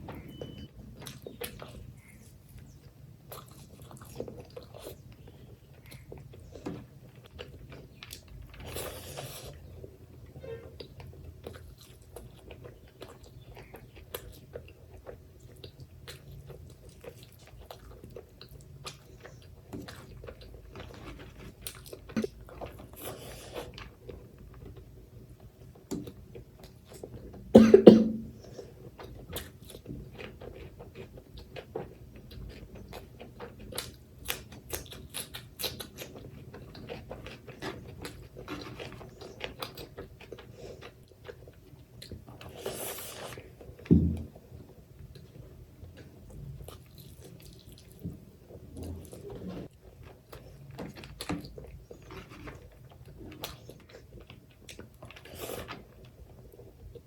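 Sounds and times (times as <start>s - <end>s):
chewing and mouth smacking: 0.3s - 27.5s, 28.4s - 57.0s
person coughing: 27.6s - 28.4s.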